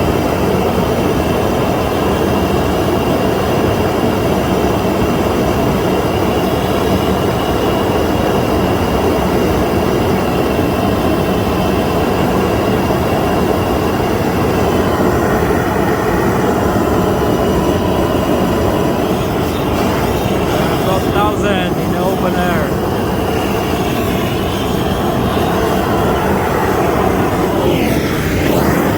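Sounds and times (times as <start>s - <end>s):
propane torch flame rushing: 14.1s - 21.8s, 22.7s - 28.9s.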